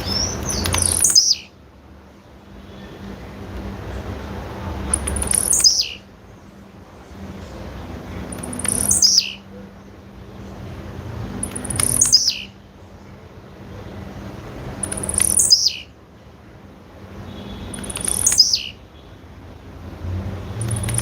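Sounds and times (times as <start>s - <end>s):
background rush: 0.0s - 21.0s
bird call sliding downward: 4.9s - 6.0s, 8.3s - 9.4s, 11.5s - 12.5s, 14.8s - 15.8s, 17.8s - 18.8s.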